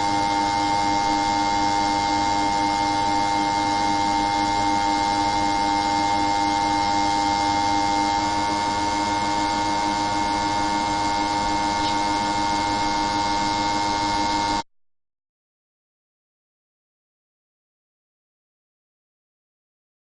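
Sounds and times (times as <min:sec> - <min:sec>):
machine hum with held tones: 0:00.0 - 0:14.6.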